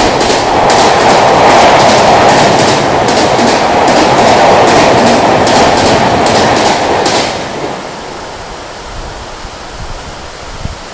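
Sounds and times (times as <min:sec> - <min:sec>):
wheels clacking over rail joints: 0:00.0 - 0:07.8
train coaches rushing past: 0:00.0 - 0:09.8
heavy rain hissing: 0:07.7 - 0:10.9.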